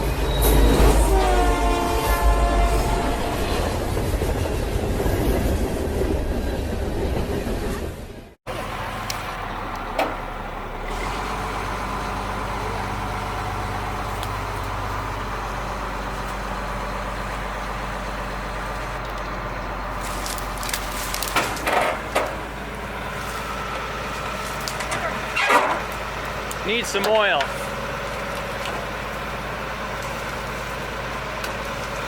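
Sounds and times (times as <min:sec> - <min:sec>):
heavy truck engine running: 0:08.1 - 0:32.0.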